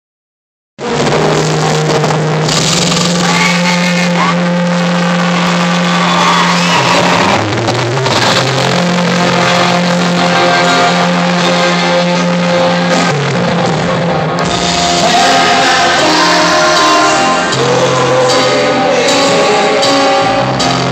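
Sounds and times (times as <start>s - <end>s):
loud rock music: 0.8s - 20.9s
person singing: 14.6s - 20.9s.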